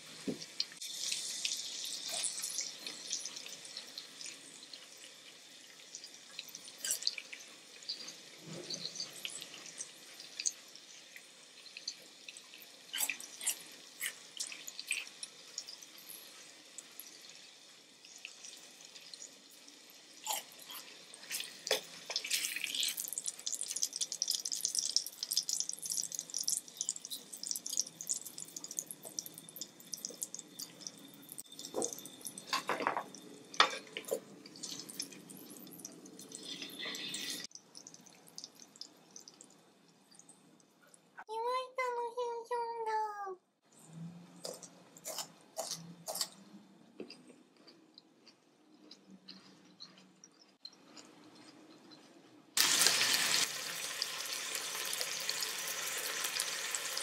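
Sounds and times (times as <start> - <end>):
crackly eating sounds: 0.6 - 17.3, 17.9 - 41.1, 44.3 - 53.0
wet chewing and smacking: 44.4 - 52.4.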